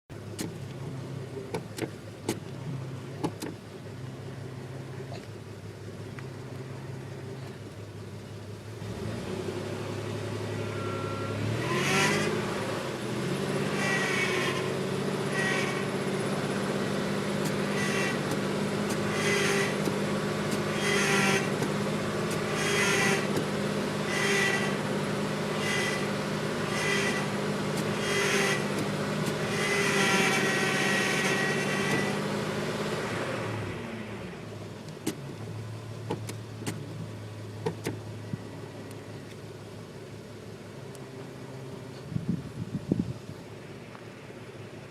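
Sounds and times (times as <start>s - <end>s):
van engine running: 0.0s - 44.9s
power steering pump whining pulse: 10.0s - 44.9s.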